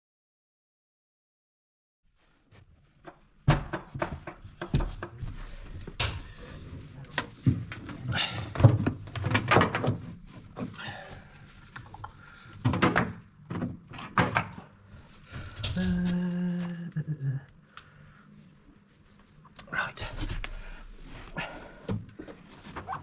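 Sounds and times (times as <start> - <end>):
knocks and thuds: 3.4 - 5.3.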